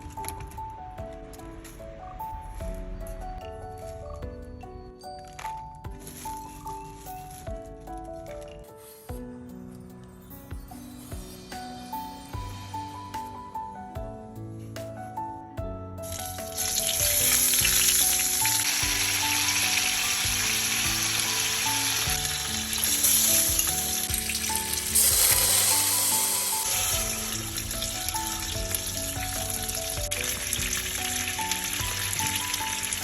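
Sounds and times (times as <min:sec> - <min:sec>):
light background music: 0:00.0 - 0:33.0
food sizzling in hot oil: 0:16.2 - 0:33.0.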